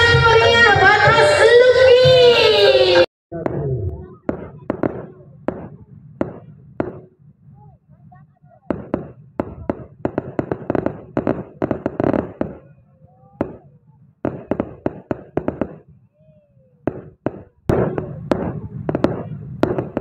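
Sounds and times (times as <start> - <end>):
fireworks bangs and crackles: 3.3 - 20.0.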